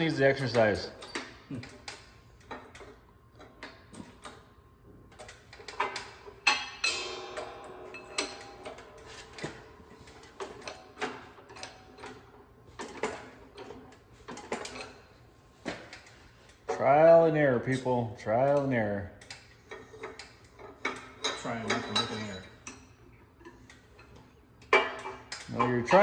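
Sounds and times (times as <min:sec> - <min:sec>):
metallic clatter and ringing: 0:05.3 - 0:15.1, 0:19.6 - 0:26.0.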